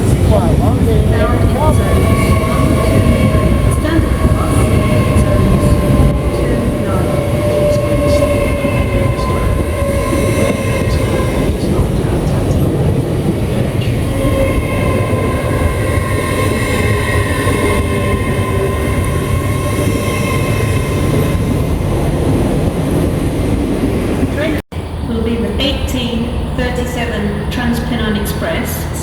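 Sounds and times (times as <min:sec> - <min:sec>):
train rumbling: 0:00.0 - 0:29.0
high whining tones: 0:00.9 - 0:23.5.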